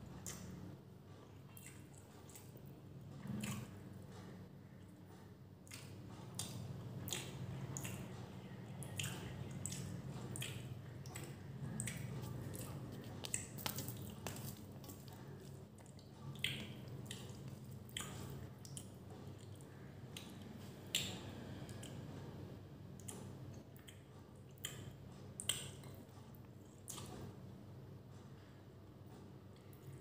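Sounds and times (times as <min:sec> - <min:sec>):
chewing with wet smacks: 0:01.3 - 0:05.0, 0:05.6 - 0:22.0, 0:23.0 - 0:27.3
fingers mixing rice squishing: 0:05.6 - 0:21.1.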